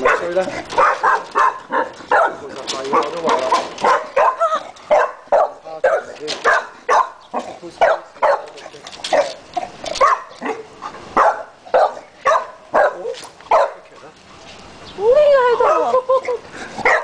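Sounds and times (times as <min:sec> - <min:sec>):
dog barking: 0:00.0 - 0:07.2, 0:07.8 - 0:13.9.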